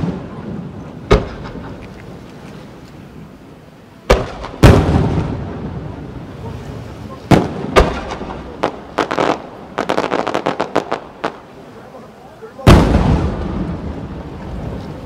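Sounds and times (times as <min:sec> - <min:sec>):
firework shells booming: 0:00.0 - 0:02.0, 0:04.0 - 0:06.4, 0:07.2 - 0:11.5, 0:12.6 - 0:14.4
firework cracks: 0:00.0 - 0:02.3, 0:04.0 - 0:06.4, 0:07.1 - 0:11.6, 0:12.6 - 0:15.0.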